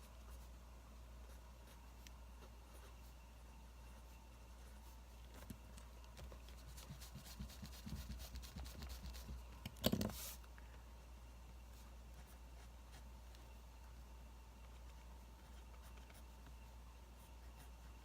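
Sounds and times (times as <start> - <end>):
faint steady hum: 0.0 - 18.0
pen scratching on paper: 6.4 - 9.4.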